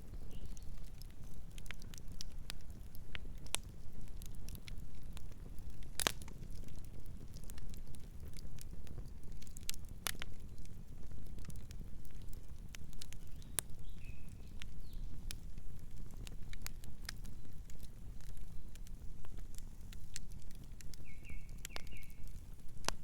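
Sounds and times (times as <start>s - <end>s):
campfire crackling and popping: 0.0s - 23.0s
bird chirping: 13.3s - 15.1s, 21.0s - 22.2s.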